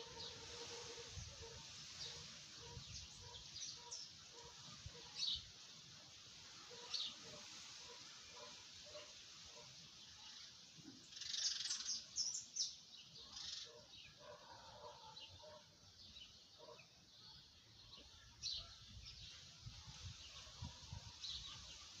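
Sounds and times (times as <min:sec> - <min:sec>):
faint bird chirps: 0:10.1 - 0:15.6.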